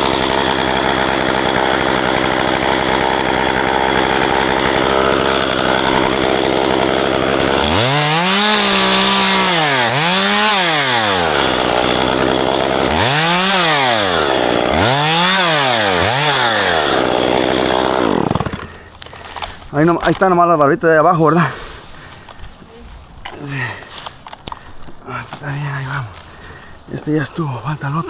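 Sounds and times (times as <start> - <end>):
chainsaw engine revving: 0.0 - 22.2.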